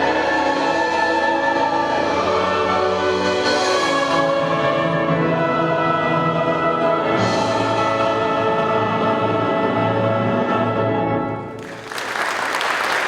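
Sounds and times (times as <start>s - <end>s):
choir and orchestra chords: 0.0s - 13.0s
audience applause: 11.6s - 13.0s.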